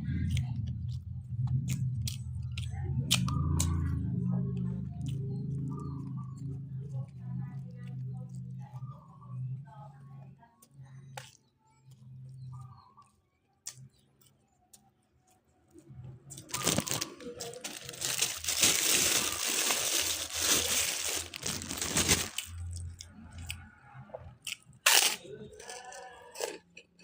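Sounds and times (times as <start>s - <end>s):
low hum: 0.0s - 10.0s, 15.9s - 25.0s
crunching and crinkling: 14.7s - 23.6s, 24.5s - 27.0s.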